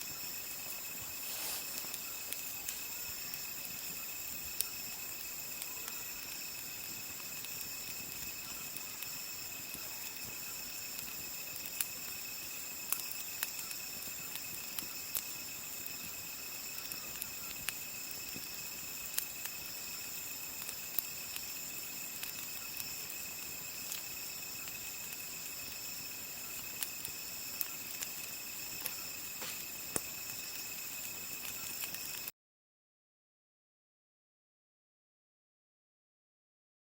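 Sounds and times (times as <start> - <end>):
campfire popping and crackling: 0.0 - 32.3
crickets trilling: 0.0 - 32.3.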